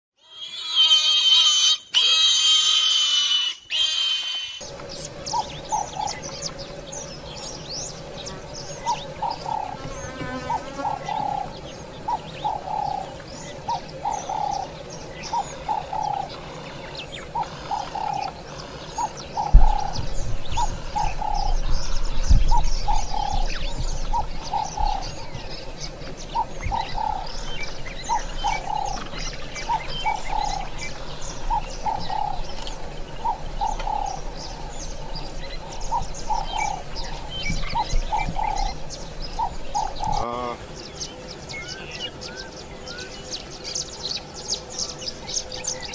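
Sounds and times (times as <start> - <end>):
low rumble: 18.4 - 40.2
loud thump: 19.5 - 20.7.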